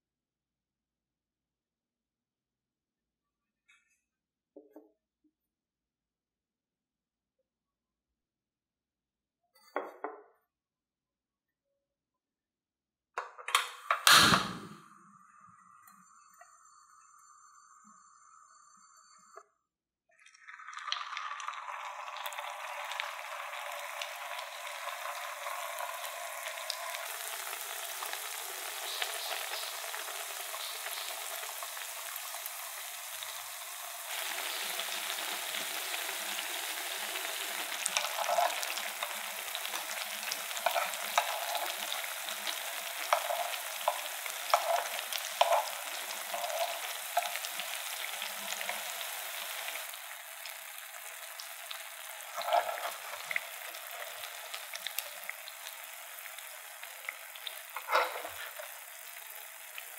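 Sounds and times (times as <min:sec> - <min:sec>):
oil sizzling while deep-frying: 0:20.2 - 0:59.9.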